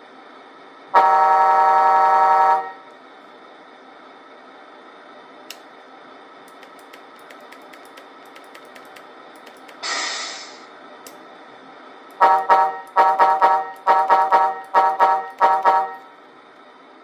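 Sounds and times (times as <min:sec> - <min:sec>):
air brake hiss: 0:09.8 - 0:10.7.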